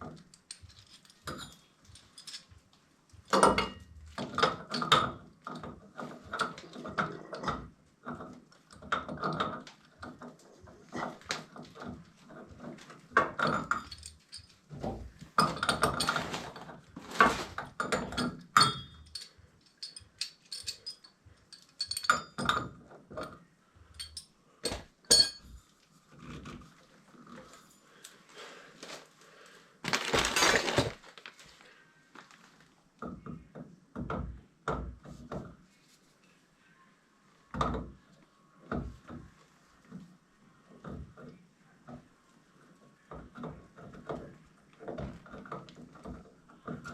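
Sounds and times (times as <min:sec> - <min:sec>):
metal parts clinking: 0:00.3 - 0:02.6, 0:13.4 - 0:14.6, 0:15.3 - 0:22.6, 0:23.9 - 0:25.5.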